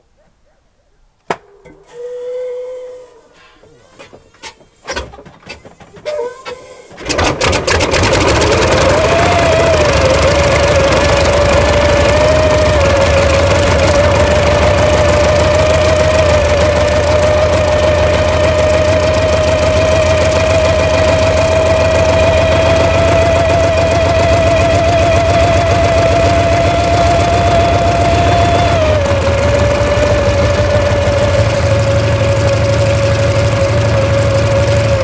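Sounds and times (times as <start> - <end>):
helicopter piston engines running: 7.1 - 35.0.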